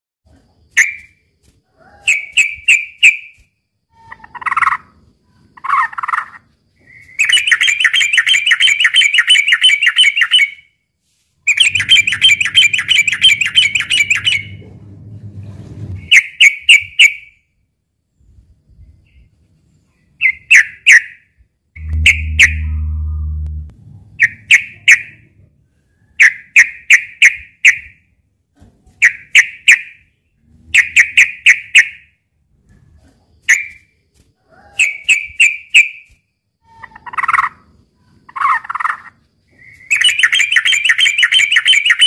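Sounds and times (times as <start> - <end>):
faint low hum: 11.5 - 16.1, 21.4 - 26.2.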